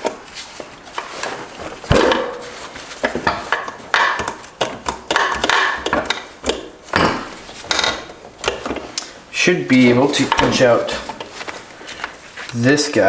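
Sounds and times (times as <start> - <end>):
metal tools clinking and knocking: 1.9 - 8.9.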